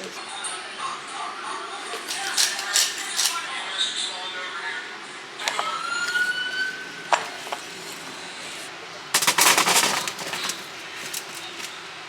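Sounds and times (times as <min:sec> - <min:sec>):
rapid rattling clatter: 0:01.9 - 0:03.5, 0:05.4 - 0:12.0
hard objects knocking: 0:05.4 - 0:11.8.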